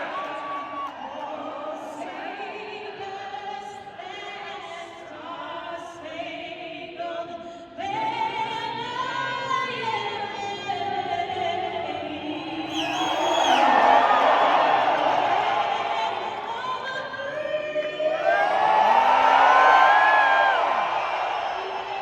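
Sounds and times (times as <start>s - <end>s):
crowd noise: 0.0s - 3.1s, 11.6s - 22.0s.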